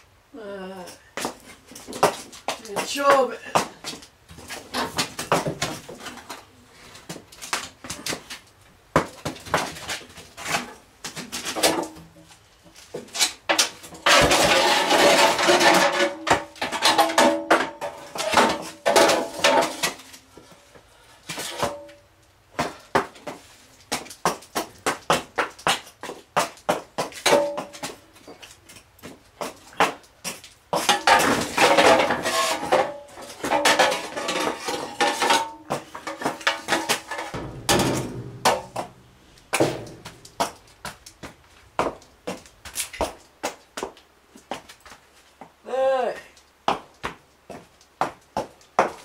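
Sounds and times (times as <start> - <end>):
hard objects clattering: 13.5 - 20.0, 30.8 - 40.8.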